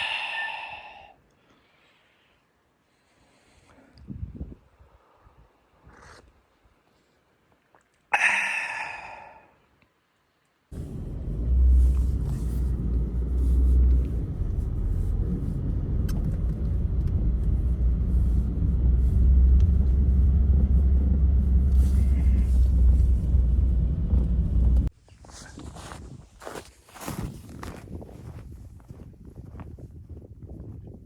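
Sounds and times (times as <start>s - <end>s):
wind rumbling on microphone: 3.9s - 6.3s, 10.8s - 24.9s, 25.6s - 31.0s.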